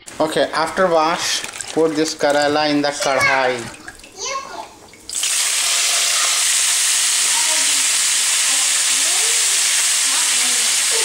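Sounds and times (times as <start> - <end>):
vegetable slices sizzling in oil: 4.5 - 11.0.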